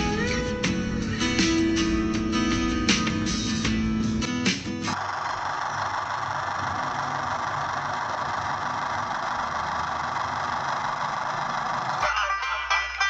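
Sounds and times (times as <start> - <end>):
guitar music: 0.0 - 5.0, 12.0 - 13.0
motor whirring: 5.0 - 12.0.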